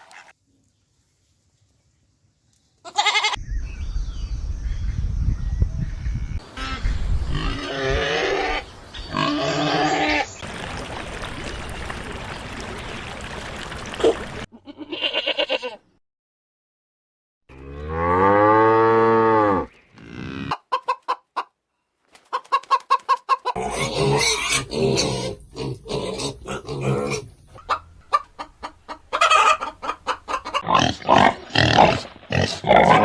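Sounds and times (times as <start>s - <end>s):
pitched animal calls: 2.9s - 3.4s, 23.5s - 33.0s
chicken clucking: 20.5s - 21.6s, 22.2s - 23.9s, 25.8s - 30.7s.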